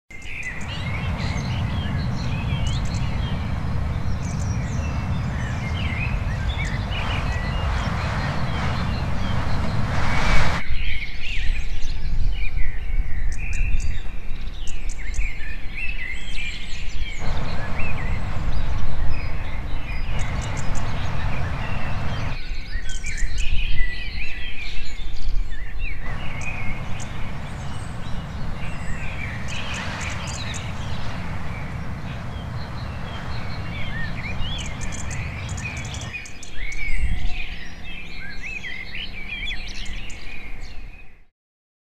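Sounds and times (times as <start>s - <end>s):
songbirds chirping and singing: 0.1s - 9.9s, 10.9s - 41.1s
low rushing noise: 0.3s - 10.8s, 17.2s - 22.4s, 26.0s - 36.6s.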